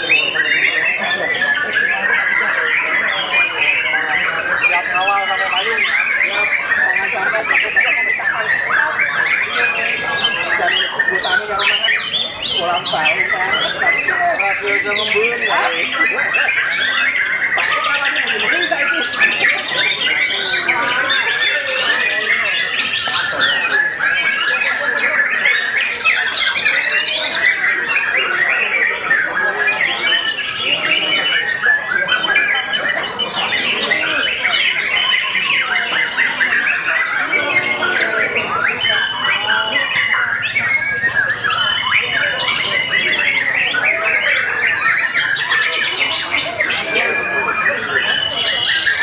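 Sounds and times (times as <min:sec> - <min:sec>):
birds singing: 0:00.0 - 0:49.0.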